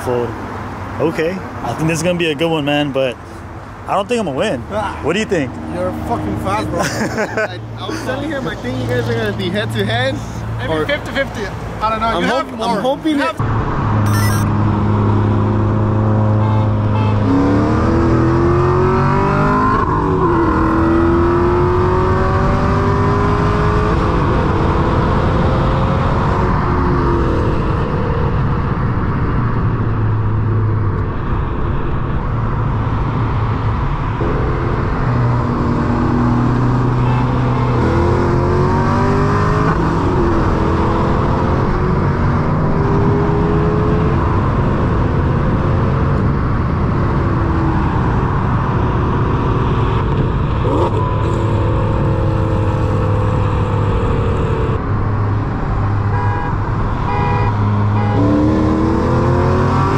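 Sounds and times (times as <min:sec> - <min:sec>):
car engine accelerating hard: 0:34.1 - 0:56.2, 0:57.1 - 0:59.9.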